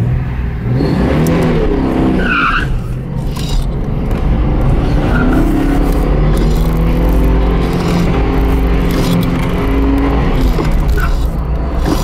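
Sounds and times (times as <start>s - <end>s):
car engine revving: 0.6s - 12.0s
tyre squeal: 2.2s - 3.8s, 4.7s - 12.0s.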